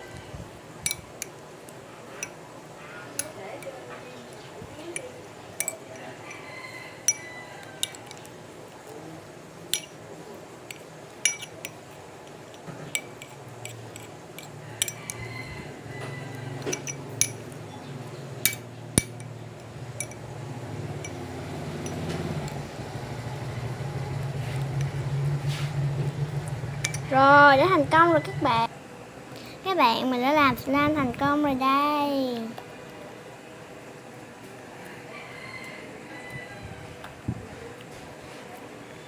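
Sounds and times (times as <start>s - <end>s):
spoon clinking against bowl: 4.9s - 6.4s, 7.0s - 8.2s, 9.7s - 10.0s, 10.7s - 11.8s, 12.9s - 15.3s, 16.7s - 17.5s, 26.8s - 27.1s.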